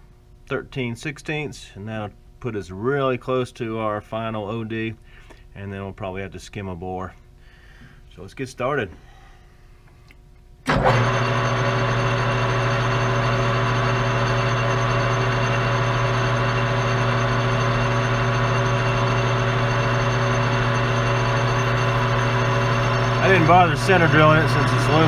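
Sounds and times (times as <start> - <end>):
metal lathe motor humming and whining: 10.7 - 25.0.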